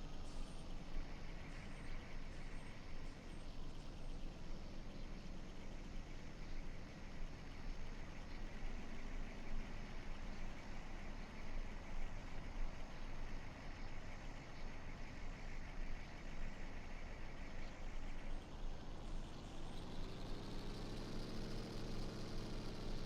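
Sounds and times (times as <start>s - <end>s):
truck engines running: 18.0s - 23.0s.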